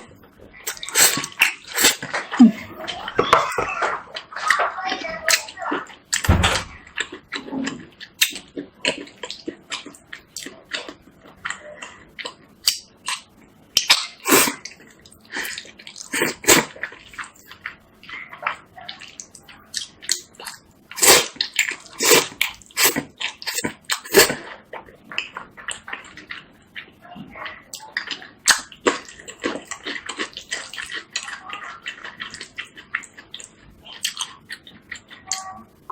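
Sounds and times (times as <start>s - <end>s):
slurping noodles: 0.7s - 2.6s, 14.2s - 14.6s, 15.4s - 16.8s, 20.9s - 24.5s
chewing and mouth smacks: 6.9s - 27.0s, 27.7s - 35.5s.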